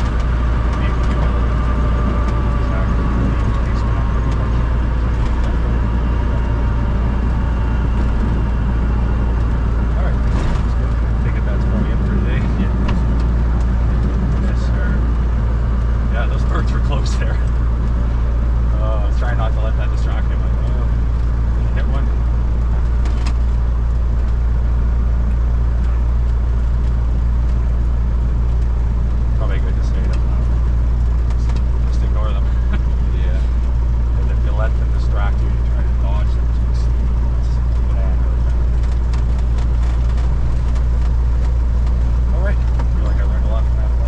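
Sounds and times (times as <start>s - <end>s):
propeller plane engine drone: 0.0s - 44.0s.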